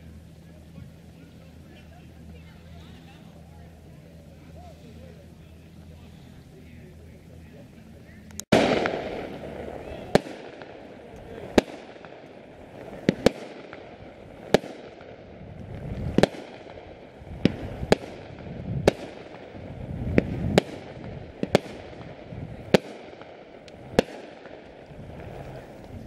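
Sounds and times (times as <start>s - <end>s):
low rumble: 0.0s - 26.0s
fireworks bangs: 8.4s - 26.0s.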